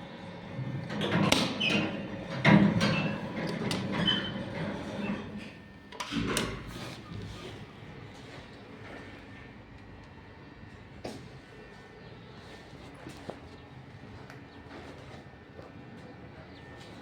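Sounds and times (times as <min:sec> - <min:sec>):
low hum of lift machinery: 0:00.0 - 0:17.0
lift doors clunking and squeaking: 0:00.7 - 0:07.6.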